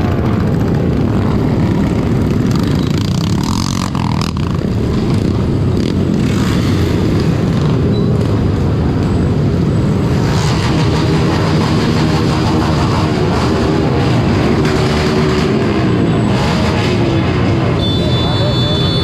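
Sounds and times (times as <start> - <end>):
heavy low rumbling: 0.0 - 3.5
other motorcycles: 0.0 - 19.0.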